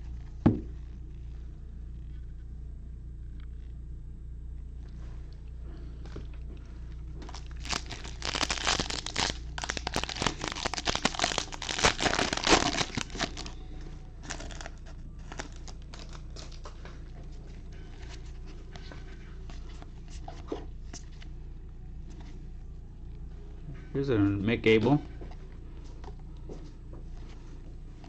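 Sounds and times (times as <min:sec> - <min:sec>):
foil wrapper crackling: 0:07.2 - 0:13.6, 0:14.2 - 0:16.8.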